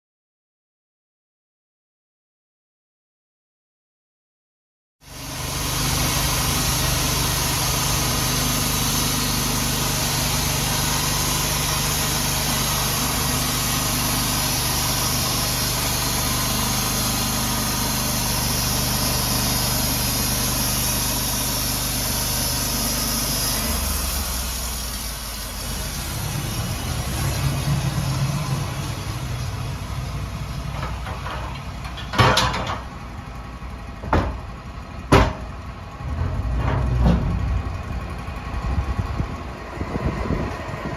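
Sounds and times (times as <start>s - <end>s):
engine running: 5.0s - 40.9s
sharp knocks: 34.0s - 34.5s, 35.1s - 35.5s.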